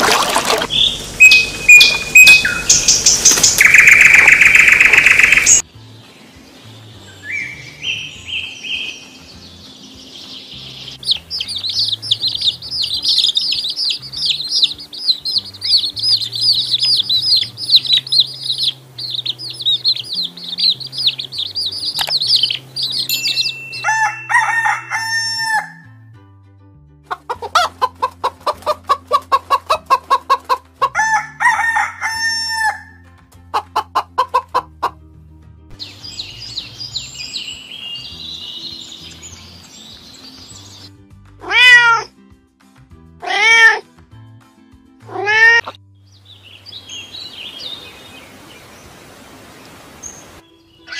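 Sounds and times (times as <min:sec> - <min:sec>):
chicks peeping: 0:00.7 - 0:05.6, 0:10.2 - 0:24.1, 0:27.1 - 0:31.0, 0:35.8 - 0:40.9
hens clucking: 0:27.1 - 0:31.2, 0:33.5 - 0:35.0.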